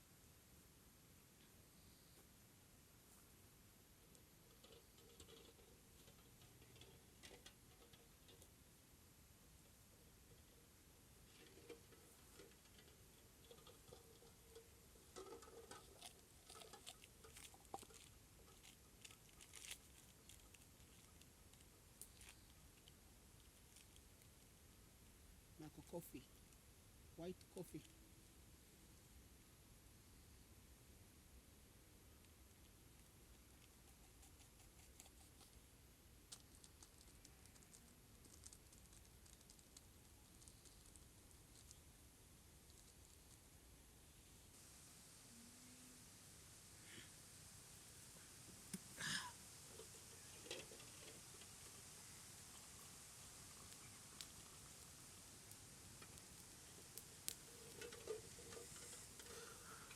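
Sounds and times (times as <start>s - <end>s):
faint small ticks and crackles: 1.3s - 2.4s, 3.0s - 28.4s, 32.0s - 59.9s
faint light clicks and rustles: 4.0s - 8.7s, 9.6s - 24.6s, 49.6s - 59.9s.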